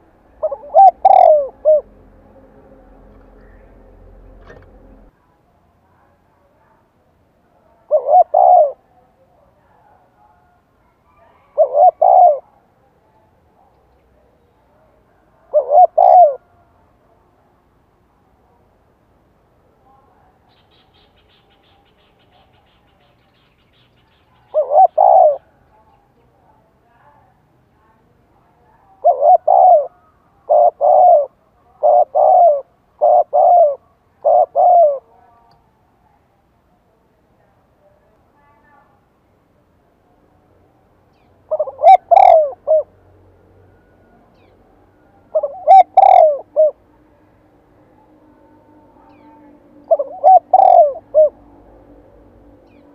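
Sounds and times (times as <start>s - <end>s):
dove cooing: 0.0s - 2.0s, 7.9s - 8.9s, 11.0s - 12.6s, 15.5s - 16.5s, 24.5s - 25.5s, 28.9s - 35.2s, 41.5s - 42.9s, 45.3s - 46.8s, 48.7s - 52.9s.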